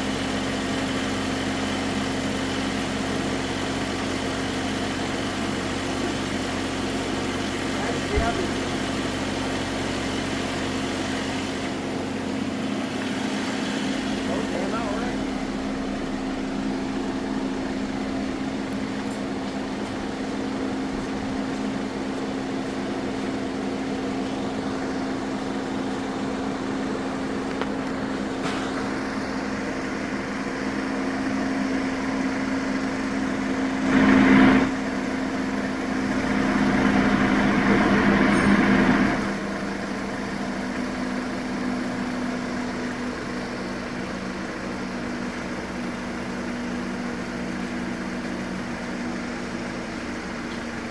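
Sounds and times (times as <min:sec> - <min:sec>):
engine idling: 0:00.0 - 0:50.9.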